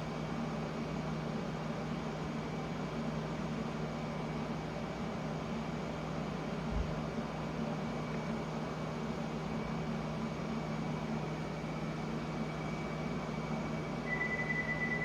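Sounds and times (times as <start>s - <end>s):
subway train rumble and hiss: 0.0s - 15.0s
high steady tone: 14.0s - 15.0s.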